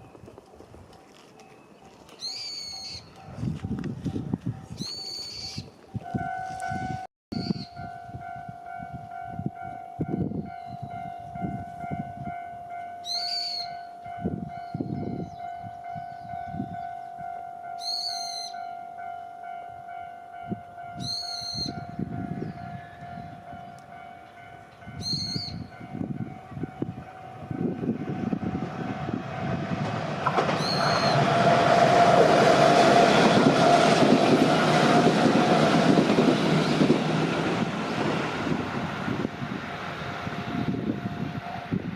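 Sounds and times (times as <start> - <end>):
electric train passing: 0.0 - 41.9
bird chirps: 1.6 - 3.2, 4.8 - 5.7, 13.0 - 13.8, 17.8 - 18.7, 21.0 - 23.5, 24.2 - 25.7, 30.6 - 31.2.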